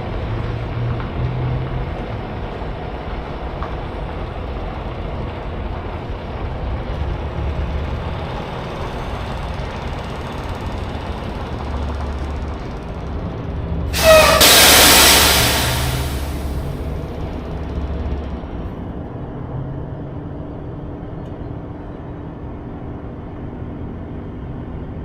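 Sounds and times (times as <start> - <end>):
diesel engine drone: 0.0 - 25.0
road noise: 0.0 - 25.0.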